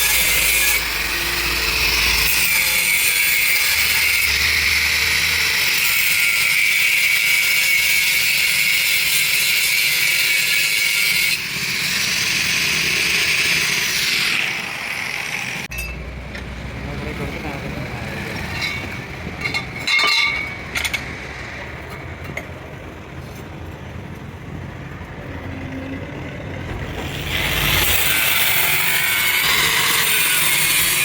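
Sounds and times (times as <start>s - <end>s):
power tool grating metal: 0.0s - 15.9s, 26.8s - 31.0s.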